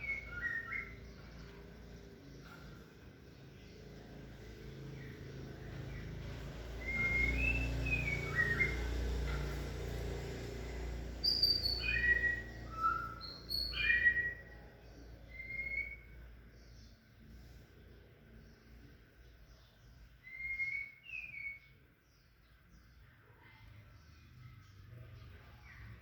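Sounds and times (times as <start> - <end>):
bird whistling song: 0.0 - 1.6, 6.6 - 9.5, 11.2 - 16.8, 20.1 - 21.8.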